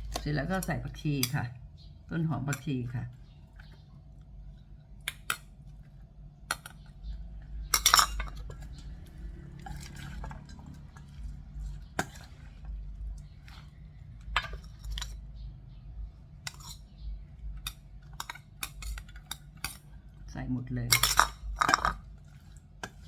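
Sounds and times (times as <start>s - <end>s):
spoon clinking against bowl: 7.7s - 8.8s, 20.9s - 22.0s.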